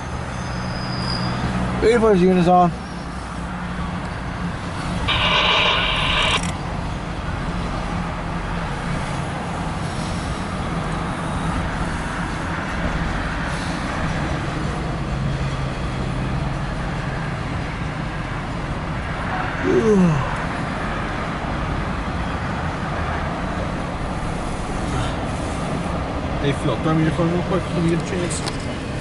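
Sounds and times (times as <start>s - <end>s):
freight train engine drone: 2.9s - 16.4s
train track noise: 3.2s - 7.9s
high-pitched tone: 5.1s - 6.5s.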